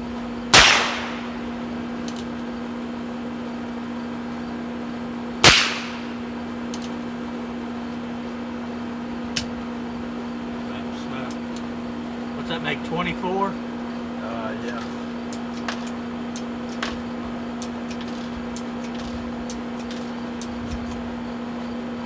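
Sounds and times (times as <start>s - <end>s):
revolver shots: 0.6s - 1.5s, 5.4s - 6.2s.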